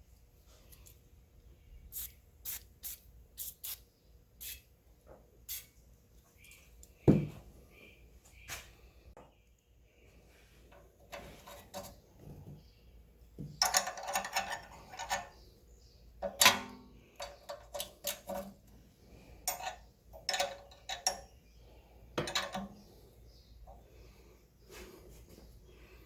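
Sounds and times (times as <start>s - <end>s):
metal tools clinking and knocking: 13.6s - 15.3s, 19.4s - 21.4s, 22.2s - 22.8s.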